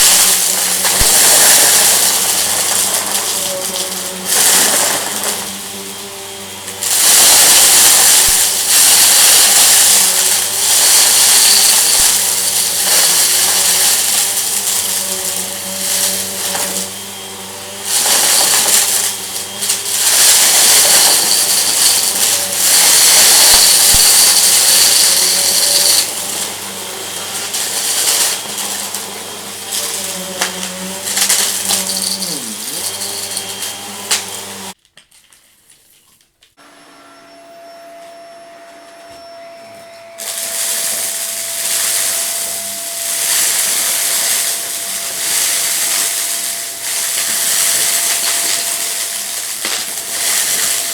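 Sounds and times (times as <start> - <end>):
loud hissing noise: 0.0 - 2.6, 6.8 - 26.2, 40.2 - 50.9
vacuum cleaner running: 0.0 - 34.8, 36.6 - 50.9
debris crackling and rattling: 0.0 - 35.4, 40.2 - 50.9.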